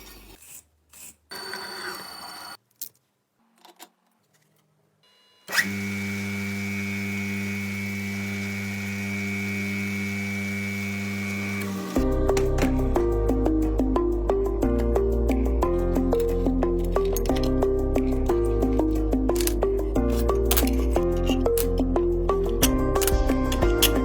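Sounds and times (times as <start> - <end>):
bench grinder motor humming: 1.3 - 2.6, 5.5 - 12.0.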